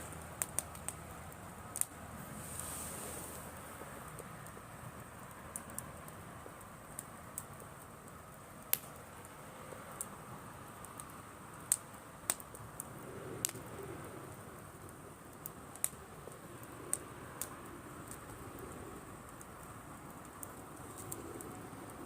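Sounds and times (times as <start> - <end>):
campfire burning: 0.0 - 22.0
wood crackling and popping: 0.0 - 22.0
dove cooing: 13.0 - 14.3, 20.8 - 22.0.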